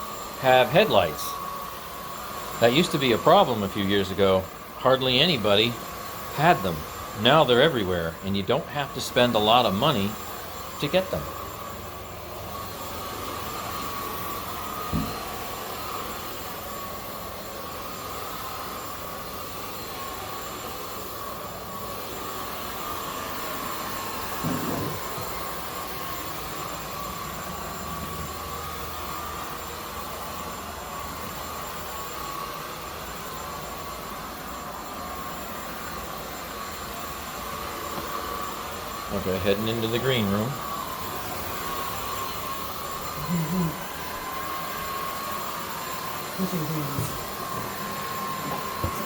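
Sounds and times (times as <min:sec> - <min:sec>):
vacuum cleaner running: 0:00.0 - 0:49.0.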